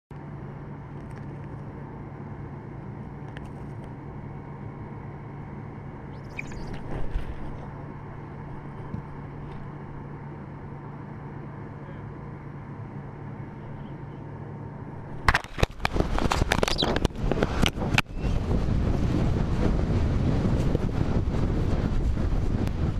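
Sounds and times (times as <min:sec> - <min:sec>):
low hum: 0:00.1 - 0:22.9
wind buffeting microphone: 0:06.1 - 0:09.9, 0:15.0 - 0:22.9.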